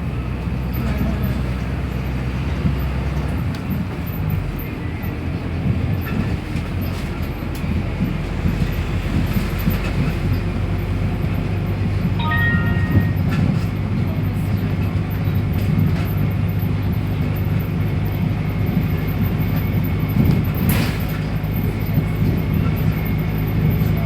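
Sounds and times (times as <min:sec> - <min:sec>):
short electronic beep: 0:12.2 - 0:13.4.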